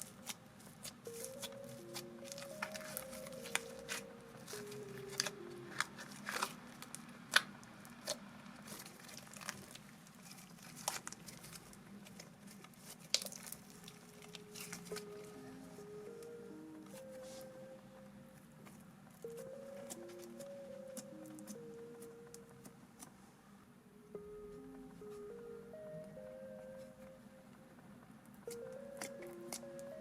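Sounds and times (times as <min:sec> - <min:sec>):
slime crackling and squishing: 0:00.0 - 0:15.8.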